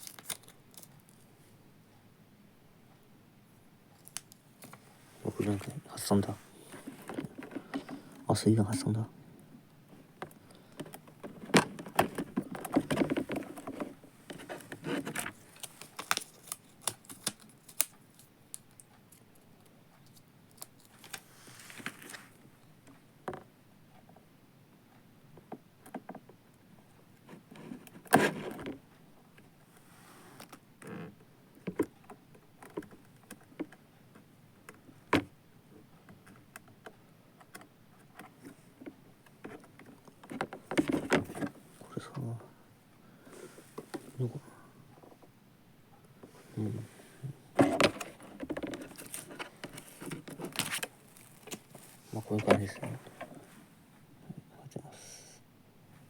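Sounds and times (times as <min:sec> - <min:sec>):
objects being handled: 0:04.0 - 0:09.0, 0:10.2 - 0:18.7, 0:38.0 - 0:41.9, 0:46.2 - 0:53.7.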